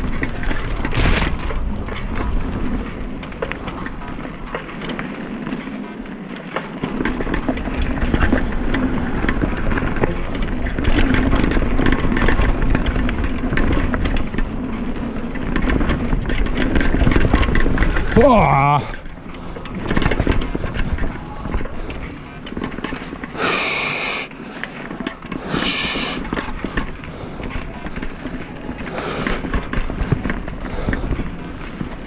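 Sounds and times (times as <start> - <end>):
bike rattles and clicks: 0.0 - 32.0
rushing noise of riding: 0.0 - 32.0.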